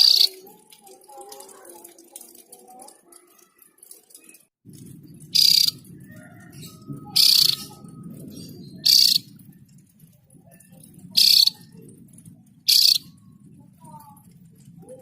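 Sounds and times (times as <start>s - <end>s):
bird giving harsh calls: 0.0s - 0.4s, 5.3s - 5.8s, 7.0s - 9.4s, 11.2s - 11.6s, 12.7s - 13.2s
low steady rumble: 4.7s - 15.0s.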